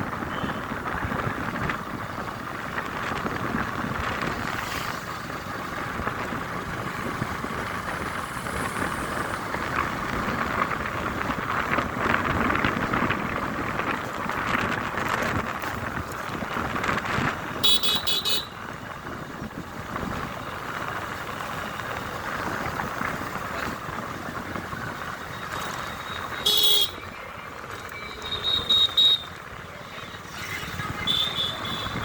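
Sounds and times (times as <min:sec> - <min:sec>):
road noise: 0:00.0 - 0:32.0
vehicle horns tooting: 0:17.6 - 0:18.6, 0:25.6 - 0:27.1, 0:27.9 - 0:29.4, 0:30.1 - 0:32.0.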